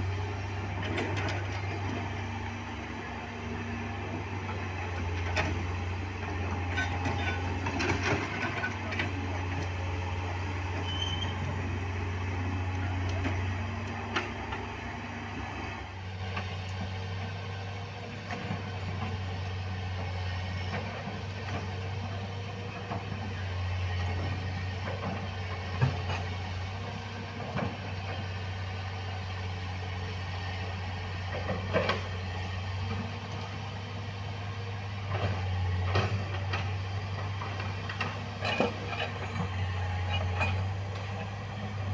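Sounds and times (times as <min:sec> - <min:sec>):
heavy vehicle engine droning: 0:00.0 - 0:41.9.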